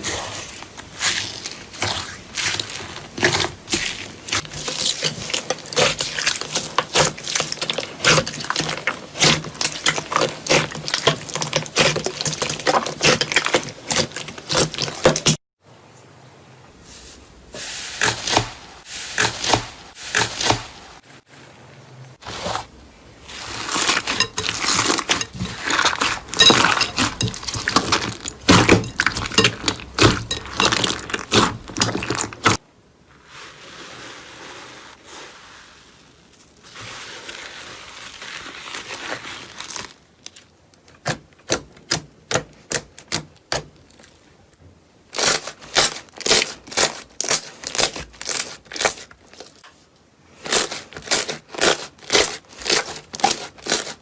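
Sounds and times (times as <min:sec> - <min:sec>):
soft rustle: 0:16.8 - 0:29.8, 0:30.5 - 0:40.6.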